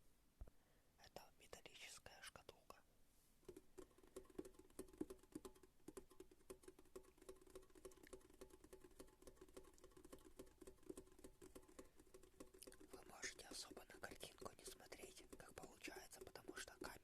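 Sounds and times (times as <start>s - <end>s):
light tapping on hard object: 3.4s - 17.0s.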